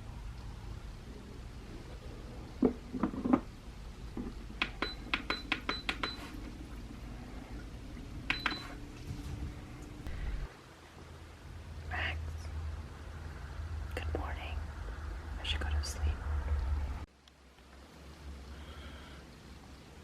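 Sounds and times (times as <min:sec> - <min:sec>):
sharp clicks and ringing clinks: 0:08.3 - 0:08.8.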